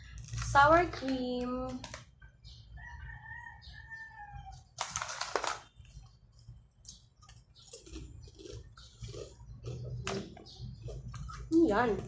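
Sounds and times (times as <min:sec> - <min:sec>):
rooster crowing: 0:02.8 - 0:04.7
crackling rustle: 0:04.8 - 0:06.0.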